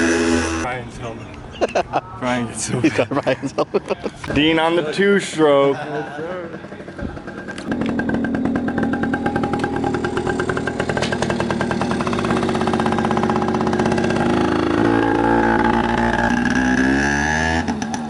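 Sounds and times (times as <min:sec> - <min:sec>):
dirt bike engine revving: 0:00.0 - 0:00.7, 0:07.6 - 0:18.0.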